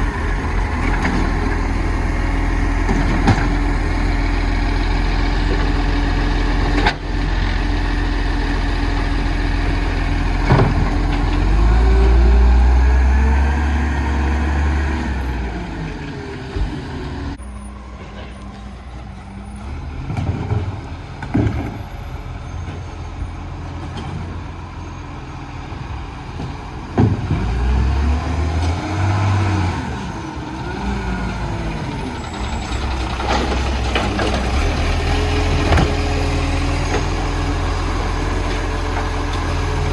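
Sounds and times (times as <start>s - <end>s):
truck diesel engine revving: 0.0s - 17.4s, 27.2s - 39.9s.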